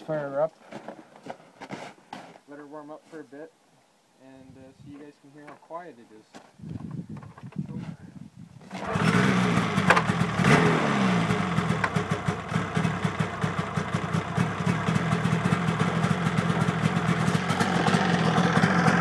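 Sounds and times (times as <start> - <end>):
snowmobile engine starting and idling: 8.6 - 19.0.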